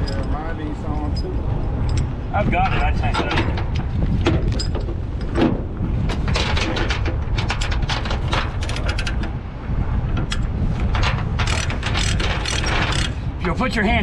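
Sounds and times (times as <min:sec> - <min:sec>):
metallic chain clicks and clanks: 0:00.0 - 0:02.1, 0:02.7 - 0:05.3, 0:06.1 - 0:09.3, 0:10.1 - 0:13.2
steady low rumble: 0:00.0 - 0:14.0.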